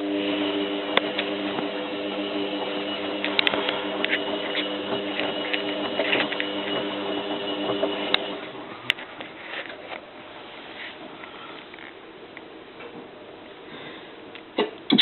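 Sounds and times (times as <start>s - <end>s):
washing machine drum humming: 0.0s - 8.9s.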